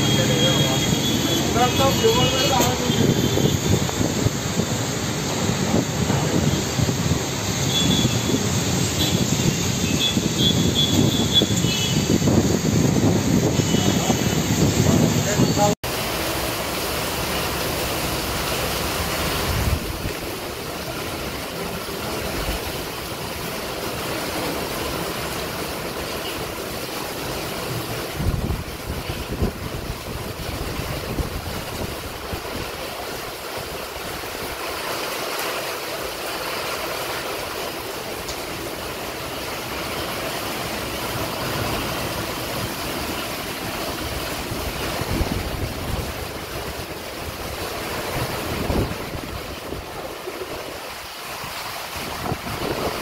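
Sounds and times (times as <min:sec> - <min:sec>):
gusting wind: 0:00.0 - 0:53.0
heavy rain pouring: 0:00.0 - 0:53.0
wind buffeting microphone: 0:02.9 - 0:15.8, 0:28.1 - 0:32.8, 0:44.0 - 0:53.0.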